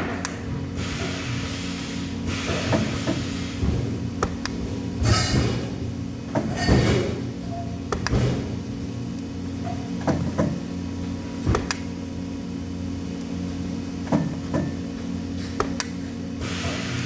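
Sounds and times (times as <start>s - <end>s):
workshop machinery hum: 0.0s - 17.0s
sharp knocks and clicks: 7.9s - 8.6s, 9.6s - 10.6s.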